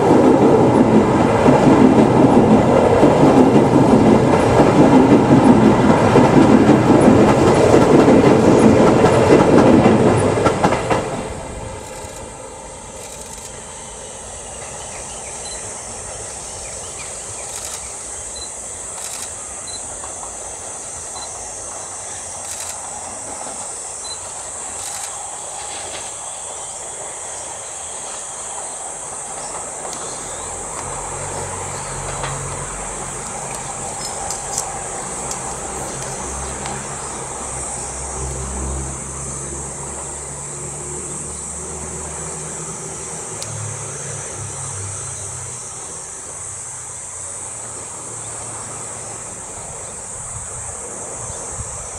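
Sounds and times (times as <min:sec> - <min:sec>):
electric train passing: 0:00.0 - 0:51.9
high-pitched hiss: 0:11.2 - 0:51.9
faint chirps: 0:13.0 - 0:20.0, 0:23.9 - 0:25.6.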